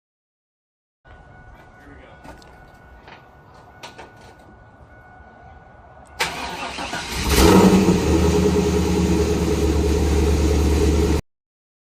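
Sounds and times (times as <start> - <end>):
car engine starting and idling: 6.2 - 11.2.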